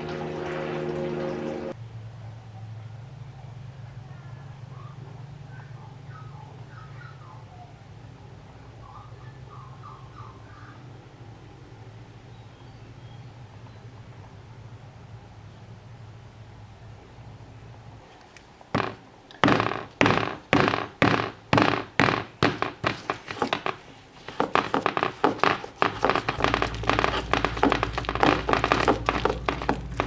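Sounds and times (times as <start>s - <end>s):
kitchen prep thunks: 18.8s - 30.0s.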